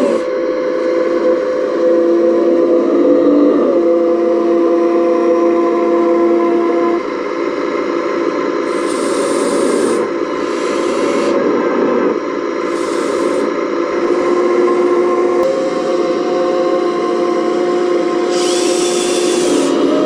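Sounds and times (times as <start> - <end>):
model excavator motor whining: 0.0 - 4.2, 8.6 - 20.0.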